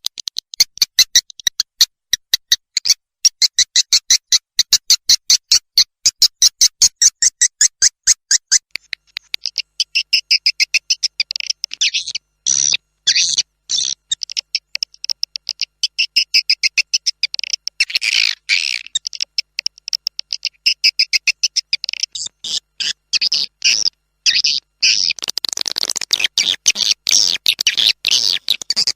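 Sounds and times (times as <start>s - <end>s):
swiftlet chirps and trills: 6.9s - 28.9s.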